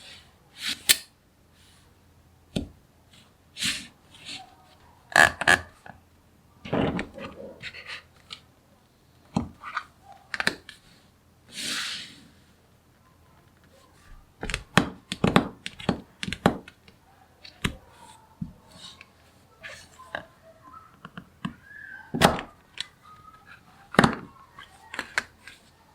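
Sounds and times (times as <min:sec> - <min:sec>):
brief scraping hiss: 0:11.5 - 0:12.3.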